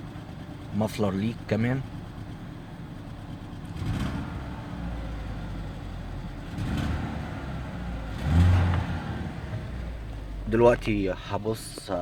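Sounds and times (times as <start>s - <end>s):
engine idling roughly with misfire: 0.0s - 4.1s
exhaust puffing: 6.4s - 11.2s.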